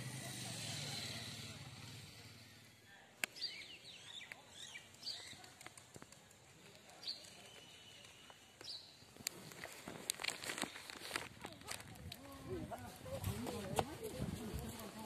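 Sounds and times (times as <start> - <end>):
bird chirps: 3.3 - 5.6.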